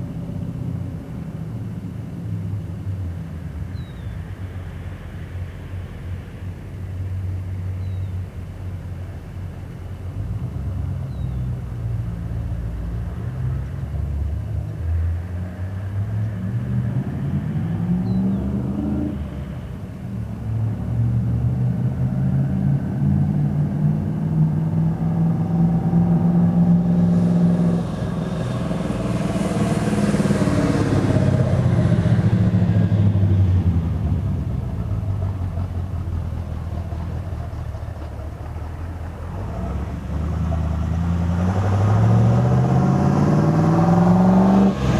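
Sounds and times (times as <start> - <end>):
engine exhaust under load: 9.8 - 44.9.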